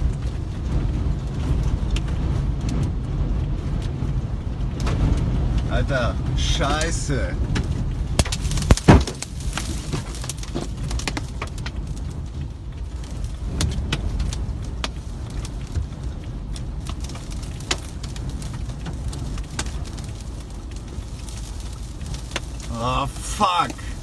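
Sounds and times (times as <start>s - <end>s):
storm wind rumbling: 0.0s - 24.0s
sharp ticks and knocks: 7.5s - 12.1s.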